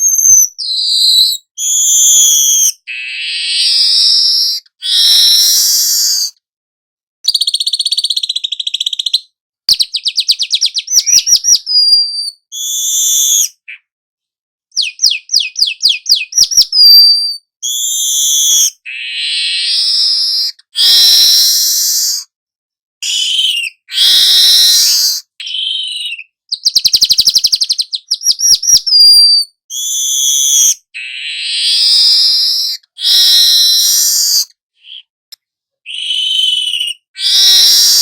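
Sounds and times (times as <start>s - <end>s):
bird whistled notes: 0.0s - 6.4s, 7.3s - 13.9s, 14.8s - 22.3s, 23.0s - 35.1s, 35.9s - 38.0s
bird trill of clicks: 7.2s - 13.9s, 14.7s - 22.2s, 23.0s - 38.0s
bird buzzy chattering song: 7.3s - 13.9s, 14.7s - 22.2s, 23.0s - 35.1s, 35.9s - 38.0s.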